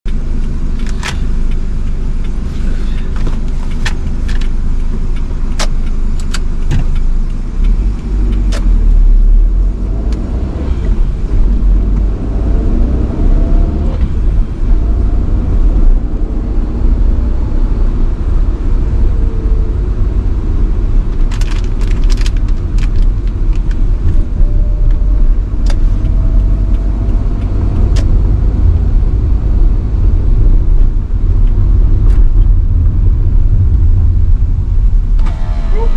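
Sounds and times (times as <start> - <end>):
car engine and road rumble: 0.0 - 35.9
sharp clicks and rattles: 0.1 - 12.2, 20.4 - 34.3.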